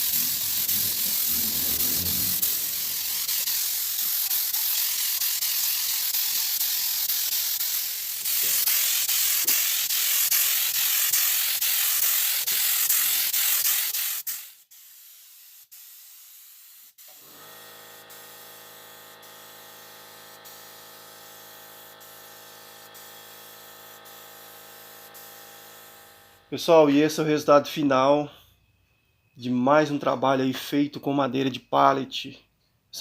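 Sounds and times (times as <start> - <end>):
loud spraying hiss: 0.0 - 17.2.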